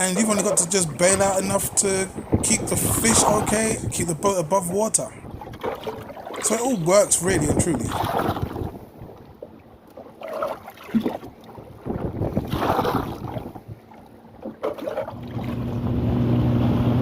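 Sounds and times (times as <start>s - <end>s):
boat engine humming: 0.0s - 17.0s
wind on microphone: 0.2s - 9.4s, 11.0s - 14.0s
water splashing and knocking in hull: 5.2s - 15.7s.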